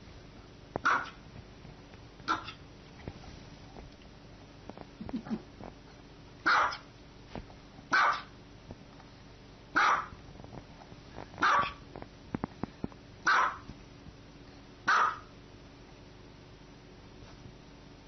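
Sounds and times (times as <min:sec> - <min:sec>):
small dog barking: 0:00.8 - 0:01.2, 0:02.2 - 0:02.6, 0:06.4 - 0:06.9, 0:07.9 - 0:08.4, 0:09.7 - 0:10.2, 0:11.4 - 0:11.8, 0:13.2 - 0:13.7, 0:14.8 - 0:15.3.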